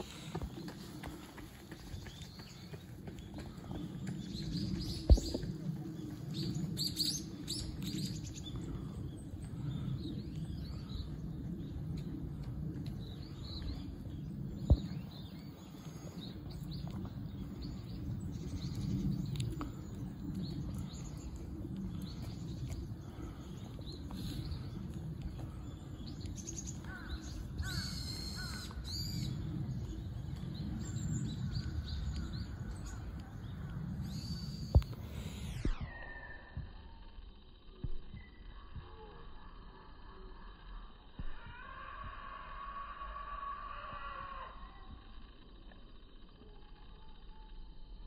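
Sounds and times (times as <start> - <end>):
small birds chirping: 0.0 - 36.9
low outdoor rumble: 0.0 - 48.0.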